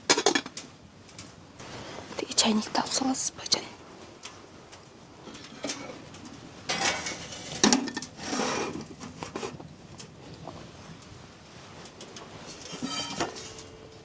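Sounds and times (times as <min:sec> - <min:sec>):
metal cookware clinking: 0:06.7 - 0:08.1, 0:12.5 - 0:14.0.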